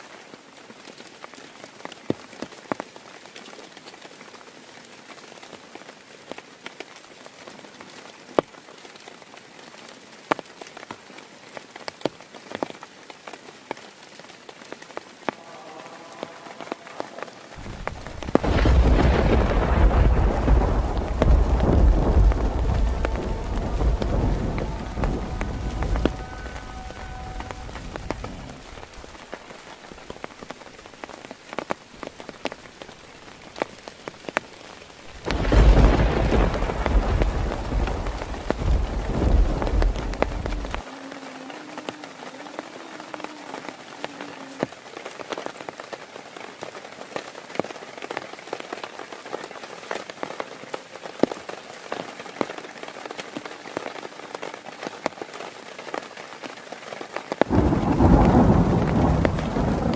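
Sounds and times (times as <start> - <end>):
heavy rain falling: 0.0 - 59.9
thunder rumbling: 16.2 - 29.6, 35.1 - 40.8, 57.4 - 59.9.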